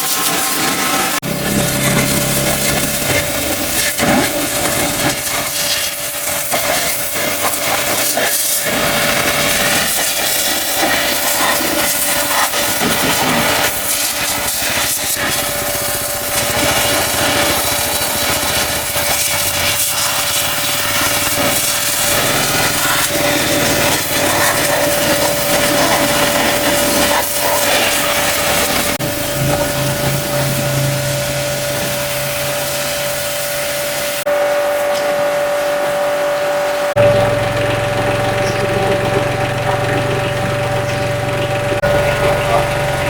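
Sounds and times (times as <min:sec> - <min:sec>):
pressure washer water jet hissing: 0:00.0 - 0:43.0
motor whine: 0:01.2 - 0:43.0.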